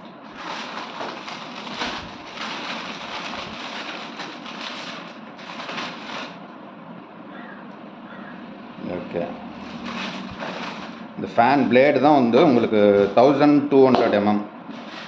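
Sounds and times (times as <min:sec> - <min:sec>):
packaging rustling and crackling: 0:00.0 - 0:06.5, 0:09.6 - 0:12.0, 0:14.7 - 0:15.0.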